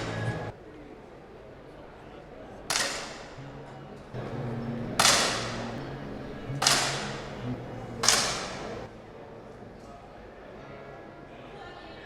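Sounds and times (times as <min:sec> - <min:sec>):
air pistol shots: 0:02.7 - 0:03.4, 0:05.0 - 0:05.8, 0:06.5 - 0:07.4, 0:08.0 - 0:08.8.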